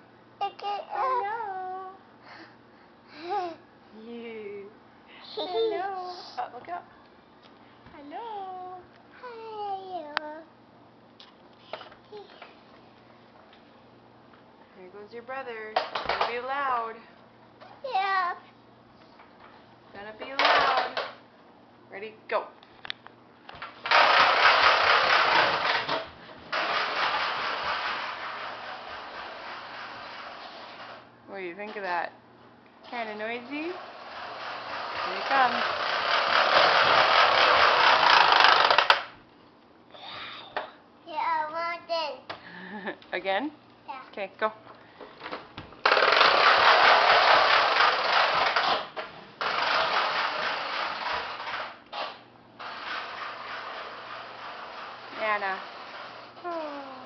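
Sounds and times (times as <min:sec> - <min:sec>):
toy truck rattling: 0:23.8 - 0:31.0, 0:33.8 - 0:39.1, 0:45.8 - 0:56.2.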